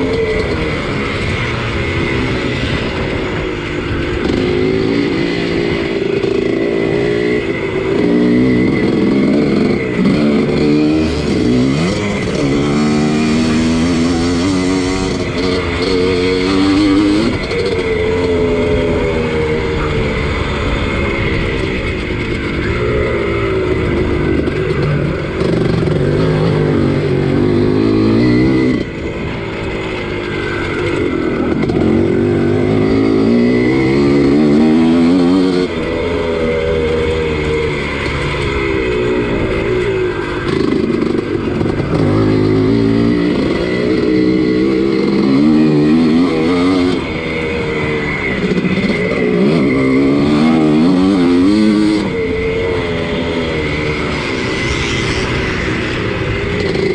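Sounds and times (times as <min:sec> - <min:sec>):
motocross engine revving: 0:00.0 - 0:56.9.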